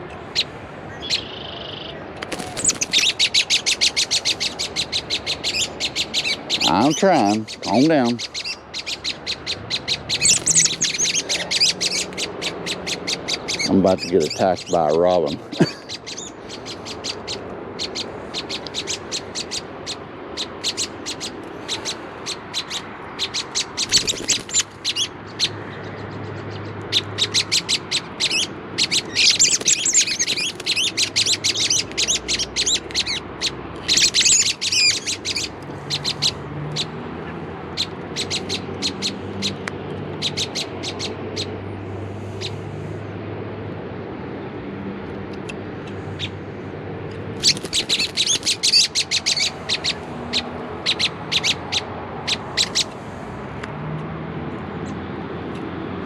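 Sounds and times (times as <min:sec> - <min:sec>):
bird alarm calls: 0:01.0 - 0:25.6, 0:26.9 - 0:37.0, 0:37.8 - 0:39.6, 0:40.2 - 0:41.5, 0:42.2 - 0:42.6, 0:47.4 - 0:52.9
bird squawking harshly: 0:02.3 - 0:17.2, 0:47.4 - 0:52.9.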